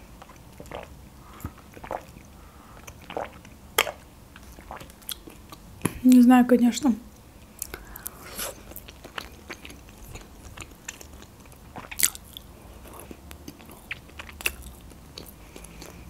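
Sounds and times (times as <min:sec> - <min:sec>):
chewing with wet mouth clicks: 0:07.6 - 0:16.0.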